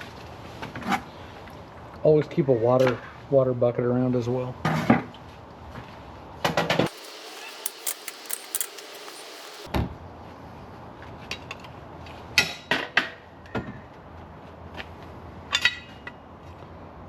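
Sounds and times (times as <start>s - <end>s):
metal clanks and clatters: 6.9s - 9.7s.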